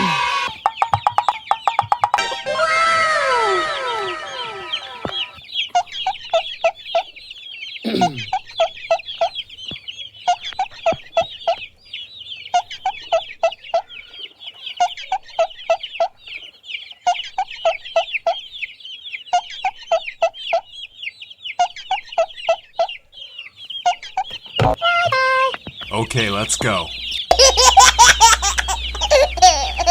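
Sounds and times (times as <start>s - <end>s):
chicks peeping: 0.0s - 29.9s
hen clucking: 0.0s - 29.9s.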